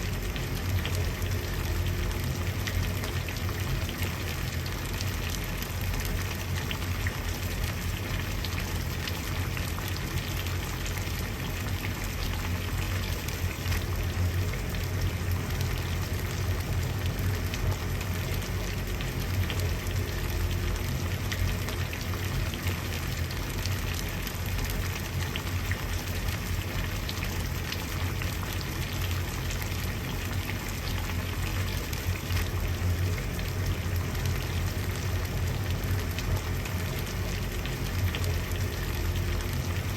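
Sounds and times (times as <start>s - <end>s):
water boiling and bubbling: 0.0s - 39.9s.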